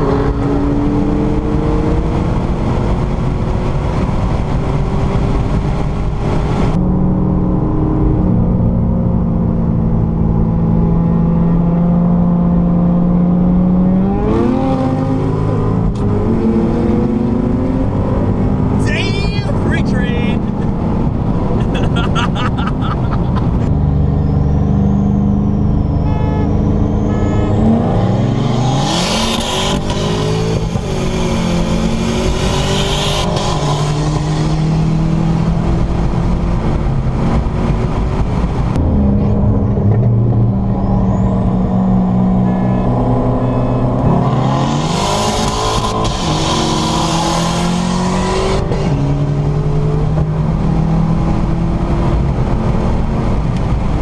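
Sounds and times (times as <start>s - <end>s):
car engine accelerating: 0.0s - 54.0s
high whine: 38.6s - 44.4s.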